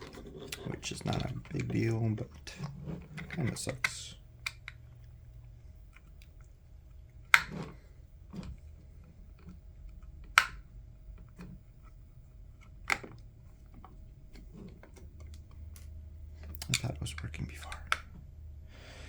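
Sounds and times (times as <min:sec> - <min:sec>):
hard plastic clicks and knocks: 0:00.0 - 0:05.1, 0:12.6 - 0:18.2
faint steady hum: 0:00.0 - 0:19.0.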